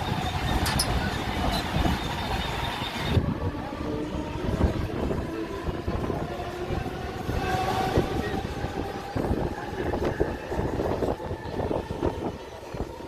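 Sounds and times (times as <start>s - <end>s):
faint whining tones: 0.0s - 3.2s
train carriage rumbling and rattling: 0.0s - 13.0s.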